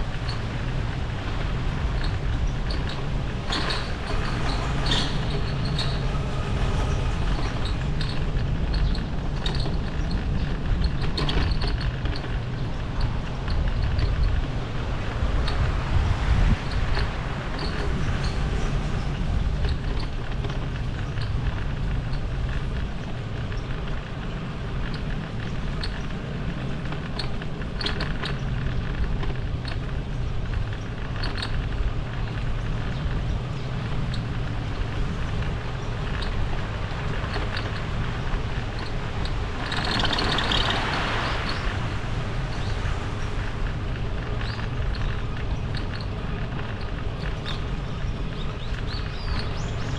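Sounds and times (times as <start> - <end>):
wind and road noise: 0.0 - 49.9
light ticks: 15.3 - 49.9.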